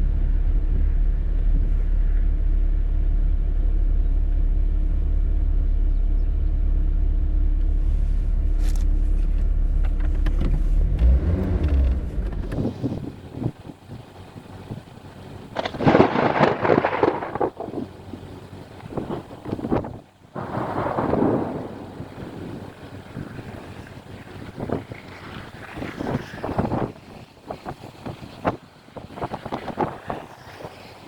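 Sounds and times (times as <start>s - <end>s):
vehicle road and engine rumble: 0.0s - 31.0s
wind noise on microphone: 7.9s - 31.0s.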